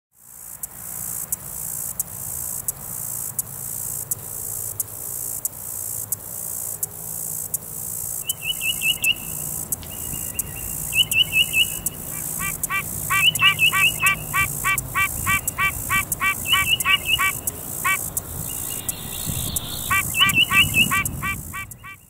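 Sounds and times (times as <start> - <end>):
katydid buzzing: 2.5 - 22.0
songbird chirping: 8.2 - 22.0.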